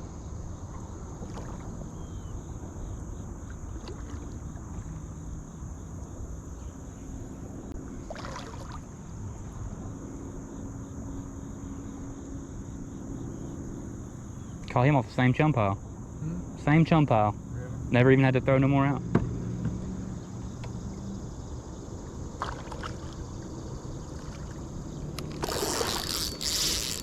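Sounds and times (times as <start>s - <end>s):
crickets chirring: 0.0s - 27.0s
low outdoor rumble: 0.0s - 27.0s
noisy rustle: 25.2s - 27.0s.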